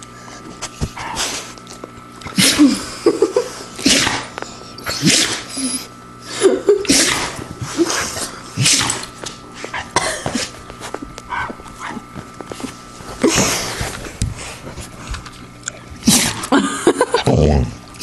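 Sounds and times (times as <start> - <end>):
dog sneezing: 2.2 - 2.8, 3.5 - 5.9, 6.7 - 9.0, 16.0 - 16.5.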